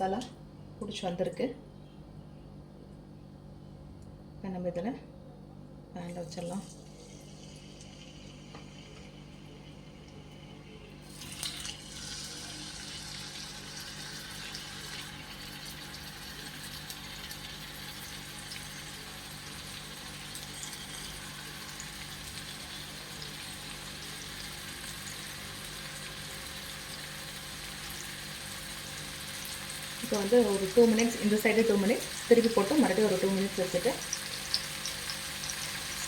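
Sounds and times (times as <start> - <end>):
small crackles of frying oil: 6.0 - 36.0
chicken sizzling in oil: 11.0 - 36.0.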